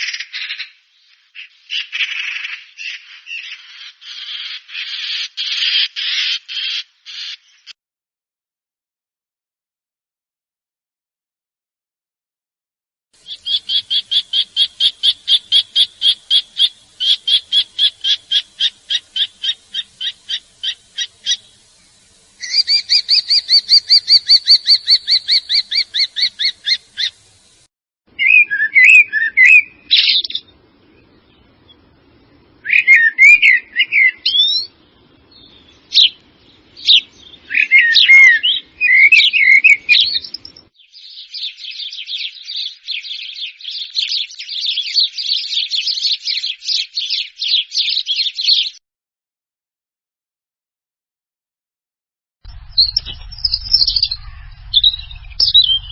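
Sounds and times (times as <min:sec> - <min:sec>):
birds singing: 0:00.0 - 0:07.7, 0:13.2 - 0:48.8, 0:52.5 - 0:55.9
faint low hum: 0:52.5 - 0:55.9.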